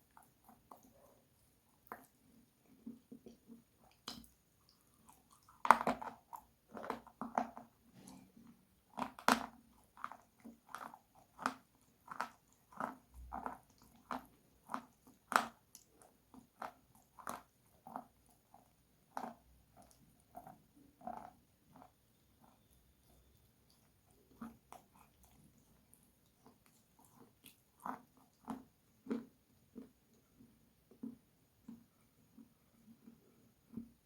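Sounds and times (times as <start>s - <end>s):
crunchy biting and chewing: 8.9s - 30.0s.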